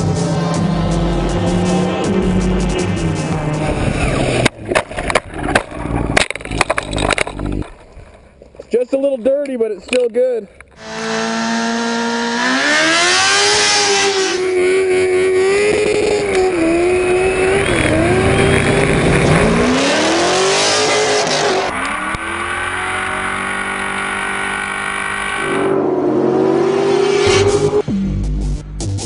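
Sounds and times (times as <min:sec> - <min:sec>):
car engine revving hard: 0:00.0 - 0:04.5, 0:10.8 - 0:27.8.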